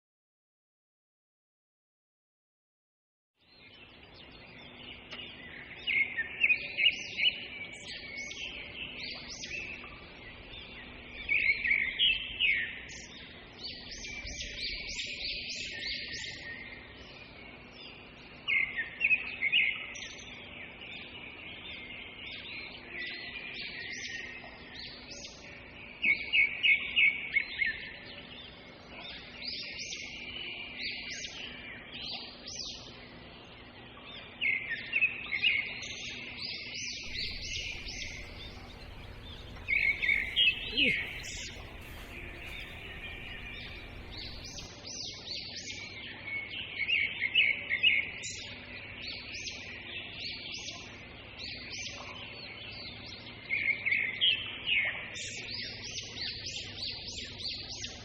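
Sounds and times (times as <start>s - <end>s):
birds chattering and chirping: 37.0s - 44.8s.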